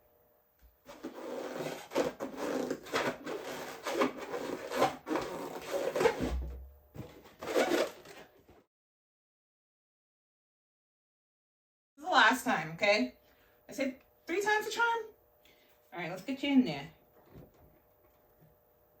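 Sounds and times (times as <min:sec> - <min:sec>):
balloons rubbing together: 0:00.9 - 0:08.4.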